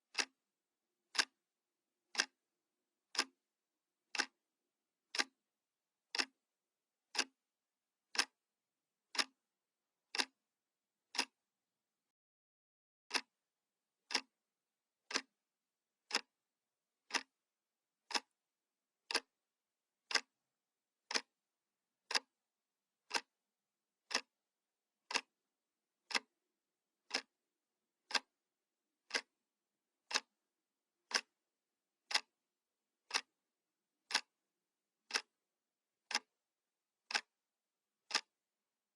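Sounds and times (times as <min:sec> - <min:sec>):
analog clock ticking: 0:02.1 - 0:02.3, 0:03.1 - 0:03.3, 0:04.1 - 0:04.3, 0:05.1 - 0:05.3, 0:06.1 - 0:06.3, 0:08.1 - 0:08.3, 0:09.1 - 0:09.3, 0:14.1 - 0:14.3, 0:15.1 - 0:15.3, 0:16.1 - 0:16.3, 0:17.1 - 0:17.3, 0:18.1 - 0:18.3, 0:19.1 - 0:19.3, 0:20.1 - 0:20.3, 0:21.1 - 0:21.3, 0:23.1 - 0:23.3, 0:24.1 - 0:24.3, 0:25.1 - 0:25.3, 0:26.1 - 0:26.3, 0:27.1 - 0:27.3, 0:28.1 - 0:28.3, 0:29.1 - 0:29.3, 0:31.1 - 0:31.3, 0:32.1 - 0:32.3, 0:34.1 - 0:34.3, 0:35.1 - 0:35.3, 0:36.1 - 0:36.3, 0:37.1 - 0:37.3, 0:38.1 - 0:38.3.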